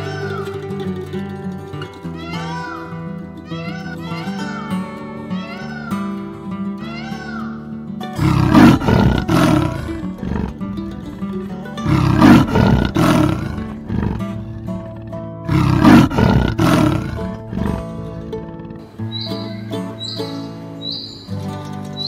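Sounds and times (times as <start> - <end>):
big cat roaring: 8.2 - 19.0.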